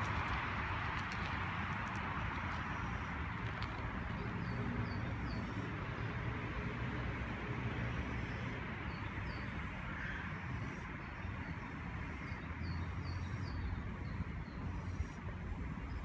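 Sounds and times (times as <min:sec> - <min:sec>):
low outdoor rumble: 0:00.0 - 0:09.0.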